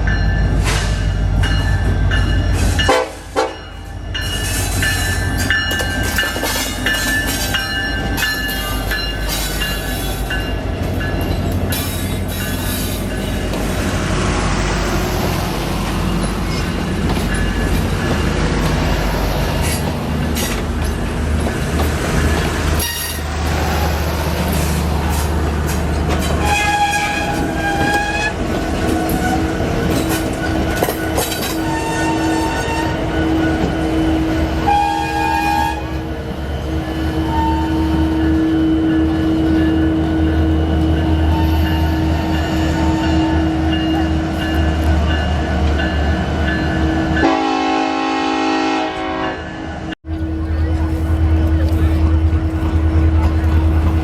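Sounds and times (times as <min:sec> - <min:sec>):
train engine humming: 0:00.0 - 0:54.0
train horn blasts: 0:02.8 - 0:03.8, 0:26.4 - 0:29.6, 0:30.4 - 0:36.1, 0:36.8 - 0:40.0, 0:46.9 - 0:49.8.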